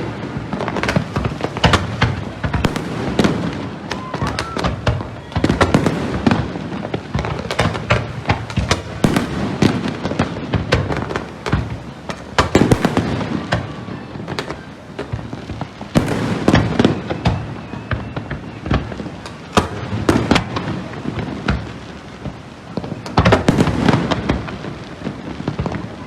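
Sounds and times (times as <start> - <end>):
fireworks bangs and crackles: 0.0 - 26.0
heavy firework booms: 0.0 - 26.0.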